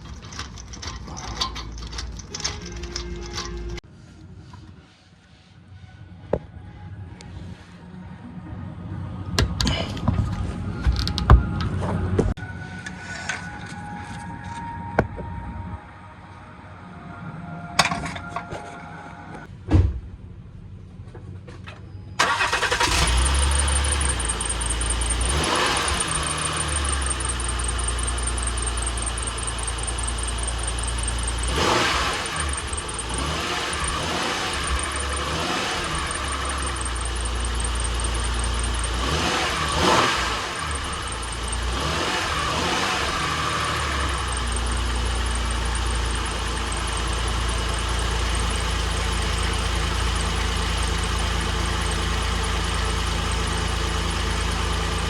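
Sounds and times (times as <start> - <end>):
car engine starting and running: 0.0 - 3.8, 22.2 - 55.0.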